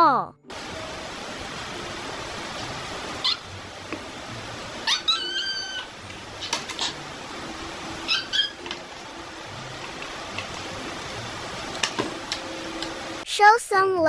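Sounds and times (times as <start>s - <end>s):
steady hiss: 0.5s - 13.2s
kitten mewing: 4.8s - 7.0s, 8.0s - 8.6s.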